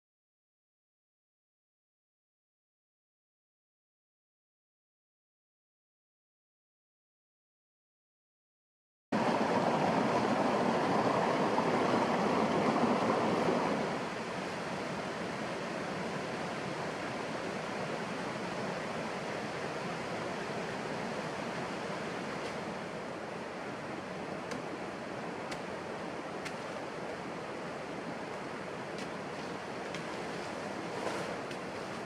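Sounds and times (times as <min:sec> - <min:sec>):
water rushing: 0:09.2 - 0:32.0.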